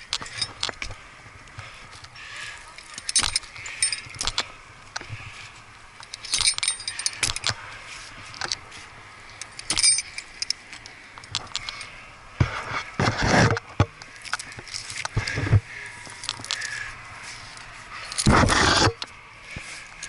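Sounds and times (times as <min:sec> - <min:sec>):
rough rustling and scraping: 0:00.0 - 0:20.0
metal hardware clinking: 0:02.8 - 0:04.5, 0:06.0 - 0:07.6, 0:09.4 - 0:11.9.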